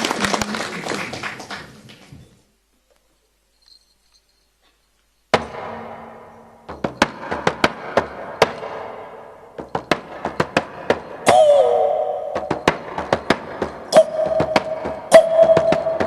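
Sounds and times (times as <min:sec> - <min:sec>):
frame drum stroke ringing: 0:05.3 - 0:16.0
sharp drumbeats: 0:05.3 - 0:16.0.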